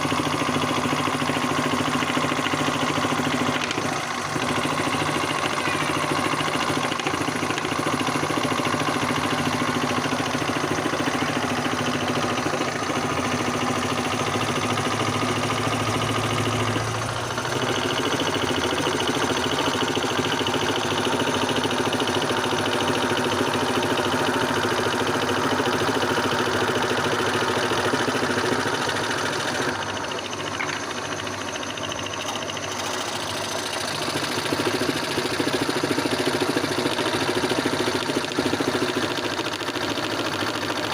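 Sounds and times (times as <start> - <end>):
scroll saw cutting: 0.0 - 24.0.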